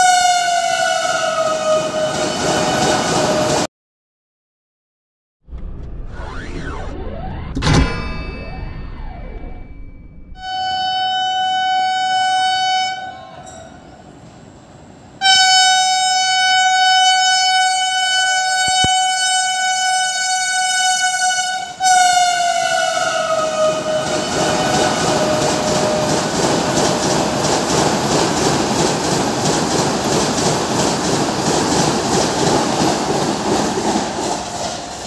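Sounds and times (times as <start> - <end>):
train horn blasts: 0.0 - 3.6, 10.4 - 13.8, 15.2 - 26.2
rush of passing train coaches: 0.0 - 3.7, 10.9 - 35.0.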